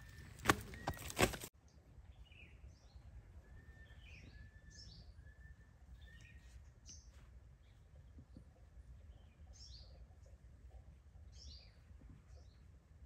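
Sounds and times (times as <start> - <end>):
birds chirping: 0.0 - 10.4
thin whistled bird notes: 2.2 - 7.2.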